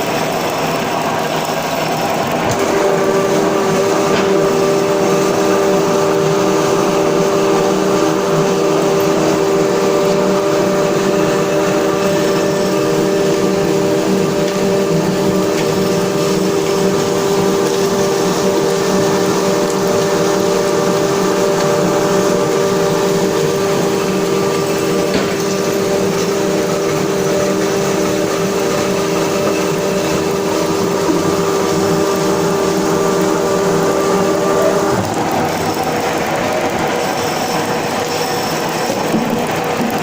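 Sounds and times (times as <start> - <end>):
lathe machine hum and whine: 0.0 - 40.0.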